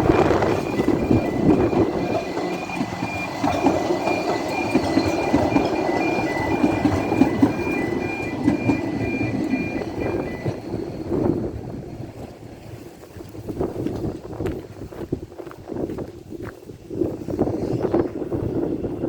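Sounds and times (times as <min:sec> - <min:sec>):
level crossing alarm: 0:00.0 - 0:11.6
passing train rumble: 0:00.0 - 0:19.0.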